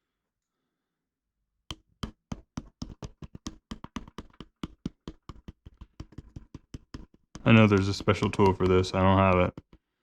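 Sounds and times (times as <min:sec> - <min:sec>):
light quick tool taps: 0:02.8 - 0:09.8.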